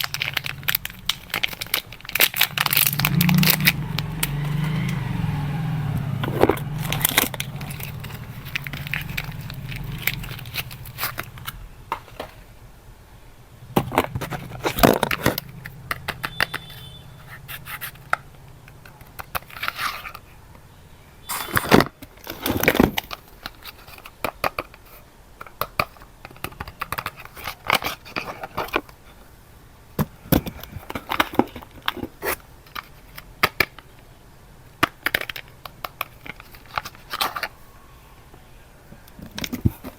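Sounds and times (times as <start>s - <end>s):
wrappers tearing and crinkling: 0.0s - 5.1s, 6.2s - 11.6s.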